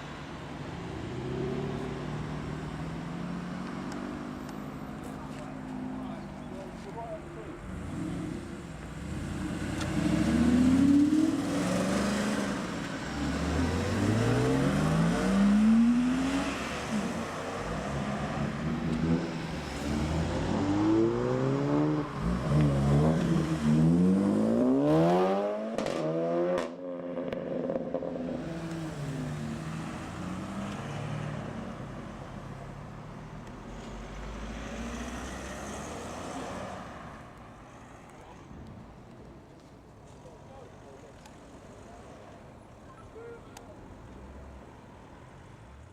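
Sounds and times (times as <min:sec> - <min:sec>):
cars accelerating: 0:00.6 - 0:37.5.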